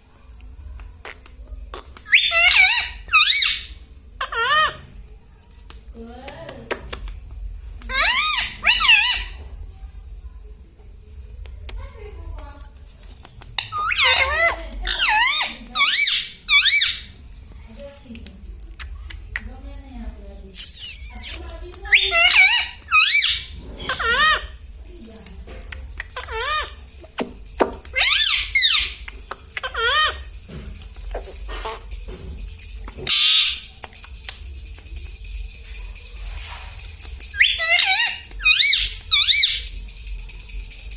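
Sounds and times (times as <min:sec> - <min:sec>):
parrot chatter: 0:00.8 - 0:05.1, 0:07.8 - 0:09.5, 0:11.7 - 0:19.6, 0:20.5 - 0:32.2, 0:32.9 - 0:34.2, 0:36.0 - 0:39.9
parrot high-pitched calls: 0:01.0 - 0:05.0, 0:07.8 - 0:09.5, 0:13.5 - 0:17.2, 0:20.5 - 0:24.6, 0:26.0 - 0:30.5, 0:31.1 - 0:32.0, 0:33.0 - 0:33.8, 0:36.3 - 0:39.9.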